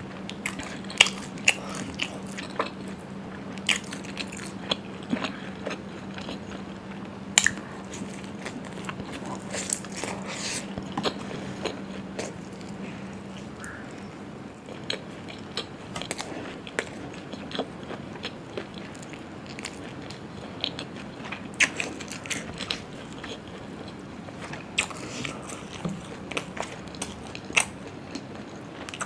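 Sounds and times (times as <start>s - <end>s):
person biting and chewing food: 7.4s - 29.0s.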